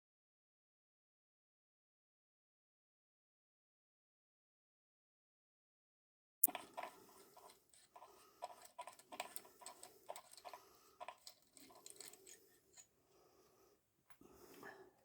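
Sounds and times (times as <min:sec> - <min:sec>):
metallic clicks of hand tools: 0:06.4 - 0:12.9.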